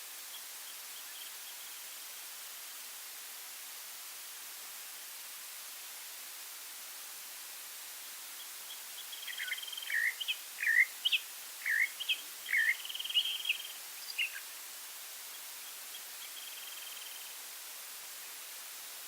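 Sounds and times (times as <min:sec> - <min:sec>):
steady background hiss: 0:00.0 - 0:19.0
songbird whistling and trilling: 0:09.1 - 0:14.4.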